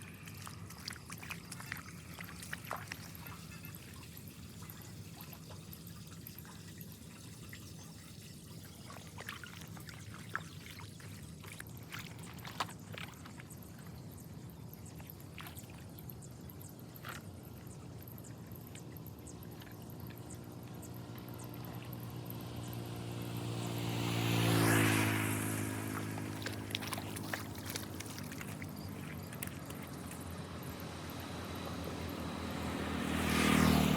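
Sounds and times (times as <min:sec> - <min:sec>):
vehicle passing by: 0:16.2 - 0:33.9.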